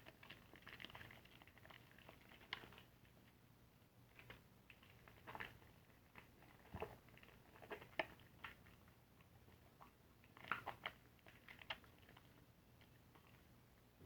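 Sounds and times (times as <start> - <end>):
soapy sponge squishing: 0.0 - 3.4, 4.1 - 13.6.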